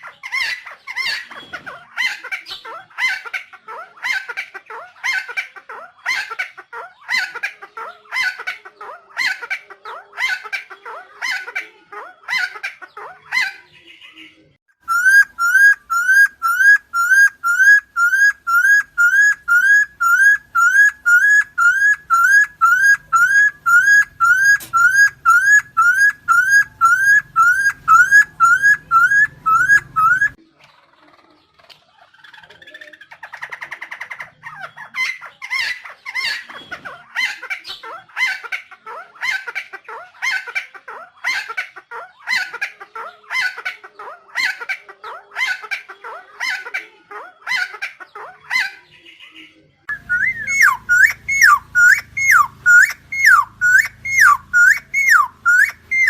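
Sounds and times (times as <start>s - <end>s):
bird harsh calls: 0.0s - 30.4s, 32.1s - 56.0s
bird rising whistled notes: 14.9s - 30.4s, 49.9s - 56.0s.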